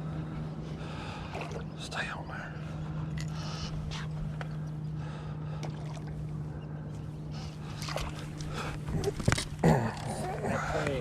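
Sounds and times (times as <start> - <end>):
steady low hum: 0.0 - 11.0
water splashing: 5.5 - 6.3, 7.6 - 9.2.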